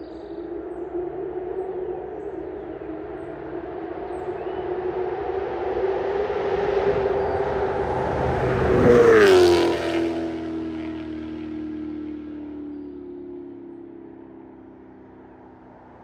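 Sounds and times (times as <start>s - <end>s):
car engine driving past: 4.2s - 13.4s.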